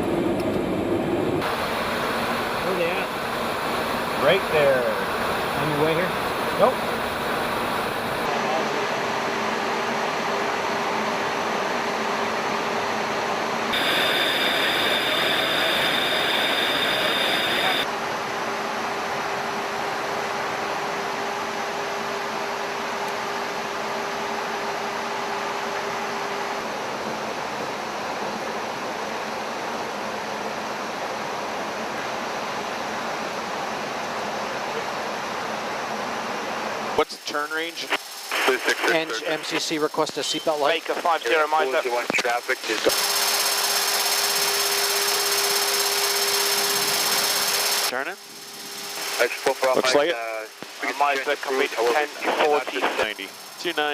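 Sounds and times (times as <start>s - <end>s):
jet aircraft cabin noise: 0.0s - 8.3s, 13.7s - 17.9s, 37.8s - 43.0s, 46.6s - 53.9s
high steady whine: 0.0s - 8.8s, 13.7s - 17.9s, 37.0s - 53.9s
aircraft airflow and engines: 0.0s - 32.3s, 44.2s - 53.9s.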